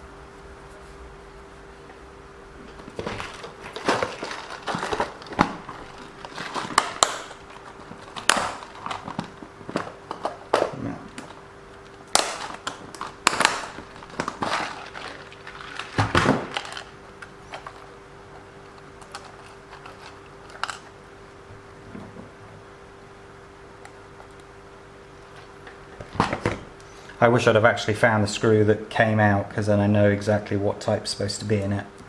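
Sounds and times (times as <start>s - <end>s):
faint steady hum: 0.0s - 32.0s
small parts clicking and rustling: 2.8s - 21.0s.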